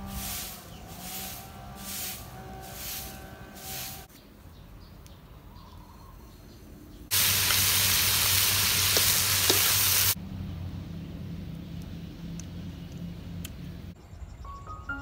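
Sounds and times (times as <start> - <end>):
food sizzling in a wok: 7.1 - 10.2.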